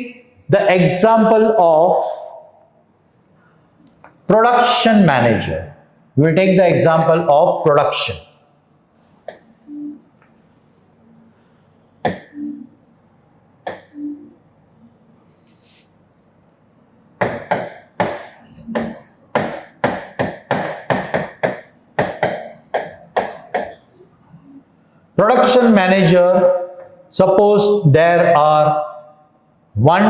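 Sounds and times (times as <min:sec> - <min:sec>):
chalk tapping on board: 0:09.3 - 0:09.5, 0:12.1 - 0:12.3, 0:13.7 - 0:14.1, 0:17.2 - 0:24.9.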